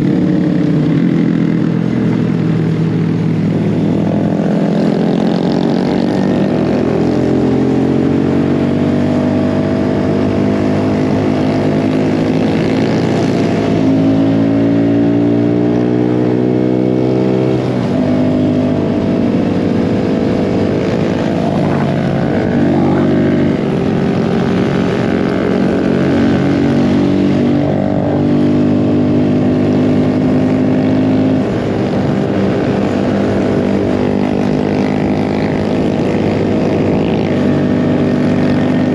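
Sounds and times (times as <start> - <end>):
mini bike engine revving: 18.6 - 27.5.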